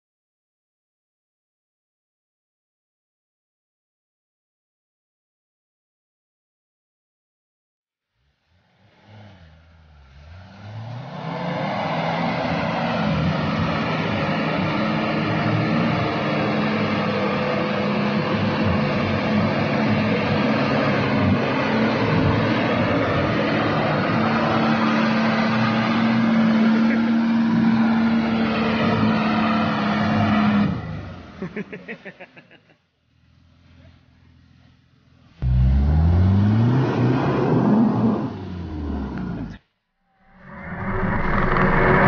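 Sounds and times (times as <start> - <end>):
car engine under load: 8.5 - 39.6.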